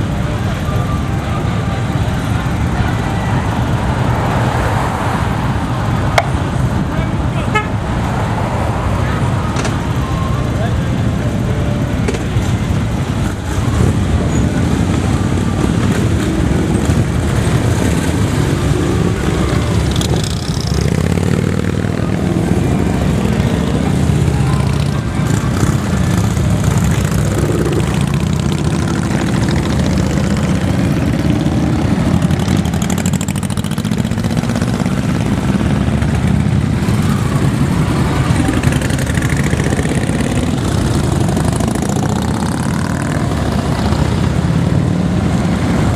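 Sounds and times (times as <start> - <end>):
many motorcycle engines running: 0.0 - 45.9.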